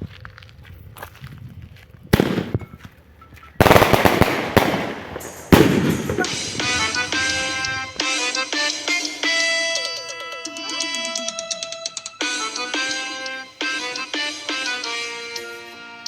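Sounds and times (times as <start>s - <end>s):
fireworks bangs: 2.1s - 2.8s, 3.6s - 8.0s
fireworks crackling: 2.2s - 2.7s, 3.6s - 8.0s
music with sustained notes: 4.9s - 16.0s.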